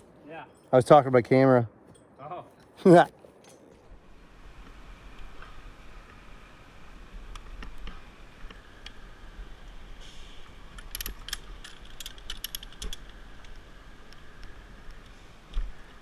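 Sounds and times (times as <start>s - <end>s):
metallic clicks and jingles: 0.0s - 3.9s, 10.8s - 13.1s.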